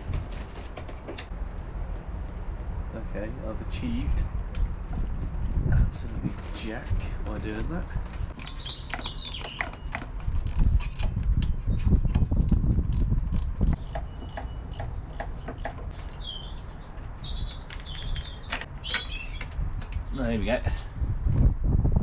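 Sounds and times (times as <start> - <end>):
birds chirping: 8.0 - 13.0, 13.6 - 20.6
hand ratchet clicking: 8.9 - 11.5, 12.1 - 15.9.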